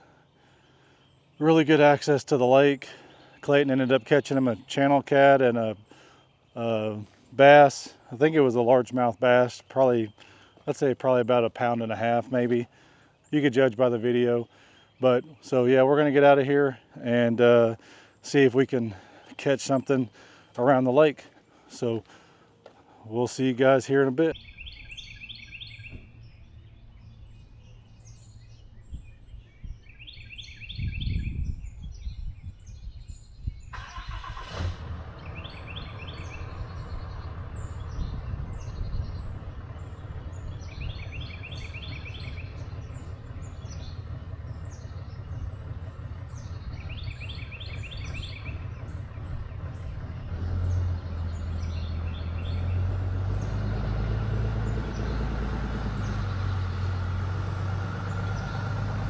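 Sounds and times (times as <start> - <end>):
songbird singing: 0.0 - 59.0
low thump: 25.8 - 26.3
pickup truck engine running: 33.7 - 59.0.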